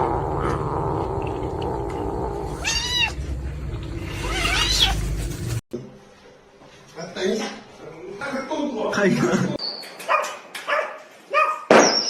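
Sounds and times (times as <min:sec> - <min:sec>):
cat yowling and meowing: 0:02.5 - 0:03.2, 0:04.2 - 0:05.0.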